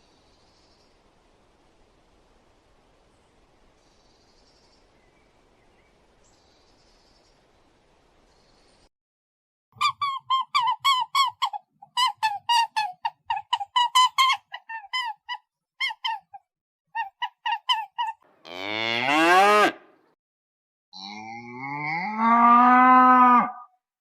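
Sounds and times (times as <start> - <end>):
cow mooing: 18.4 - 20.0, 21.0 - 23.7.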